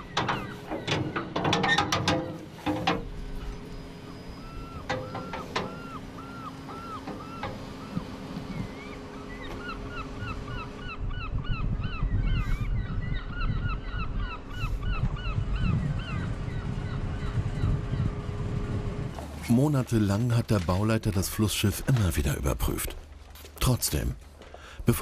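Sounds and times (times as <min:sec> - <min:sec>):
flock of birds calling: 0:00.0 - 0:18.3
steady low hum: 0:00.0 - 0:25.0
low rumble: 0:08.4 - 0:21.2.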